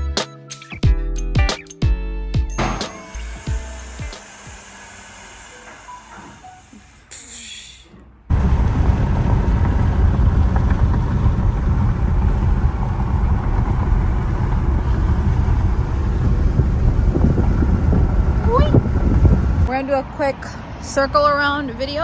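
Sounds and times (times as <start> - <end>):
car engine running: 8.3 - 19.7.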